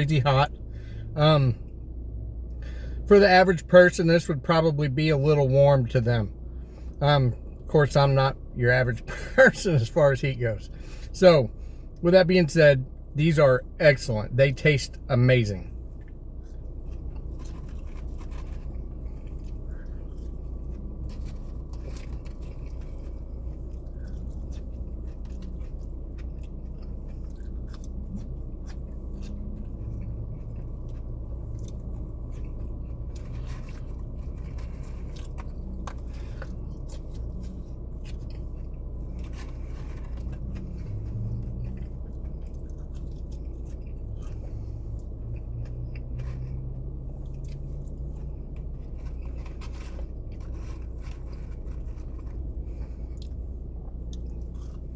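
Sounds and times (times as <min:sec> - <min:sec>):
low hum: 0:05.2 - 0:54.9
person chewing food: 0:15.8 - 0:54.9.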